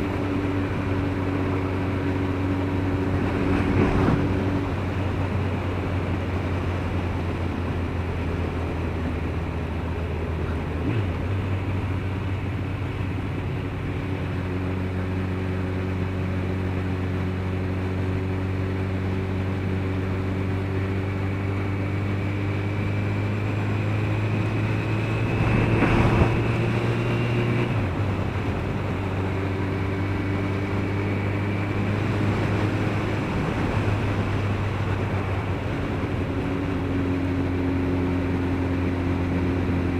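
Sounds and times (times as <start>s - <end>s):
motorcycle engine running: 0.0s - 39.9s
wind and road rush: 0.0s - 39.9s.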